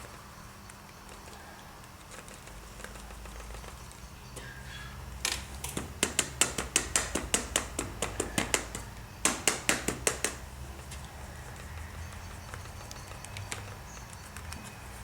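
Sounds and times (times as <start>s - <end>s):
steady low hum: 0.0s - 15.0s
rapid sharp clicks: 5.3s - 14.7s.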